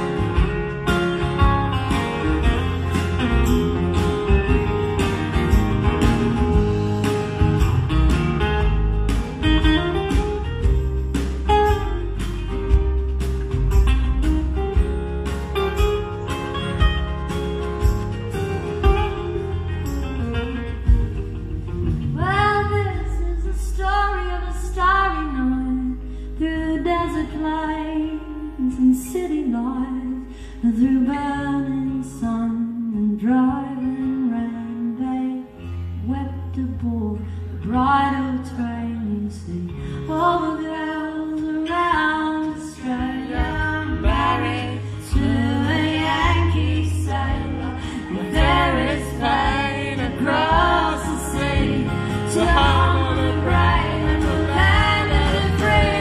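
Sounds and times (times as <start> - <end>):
bass notes: 0.0 - 35.0, 35.8 - 56.0
acoustic guitar: 0.0 - 56.0
woman singing: 22.2 - 56.0.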